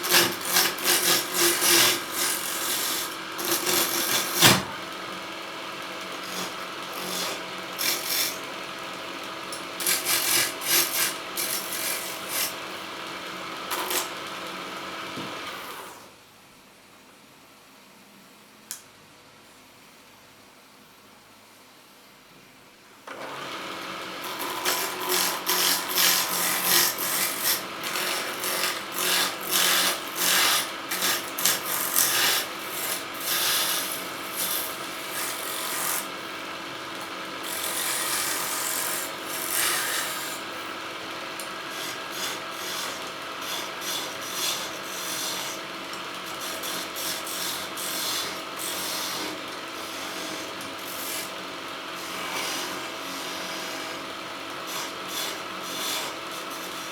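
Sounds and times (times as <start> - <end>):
turning tool scraping spinning wood: 0.0 - 4.8, 6.2 - 8.5, 9.6 - 12.6, 24.2 - 36.2, 37.0 - 40.7
lathe motor hum: 0.0 - 16.0, 23.1 - 56.0.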